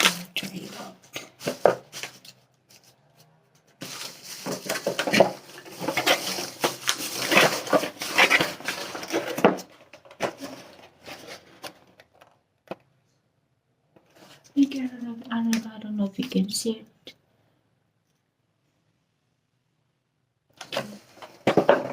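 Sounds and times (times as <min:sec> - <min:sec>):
plastic packaging rustling: 0:00.0 - 0:12.3.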